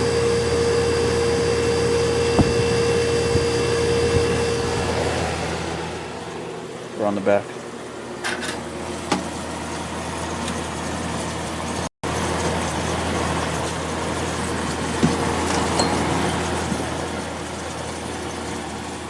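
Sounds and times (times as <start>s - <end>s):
dehumidifier hum and fan noise: 0.0s - 9.8s.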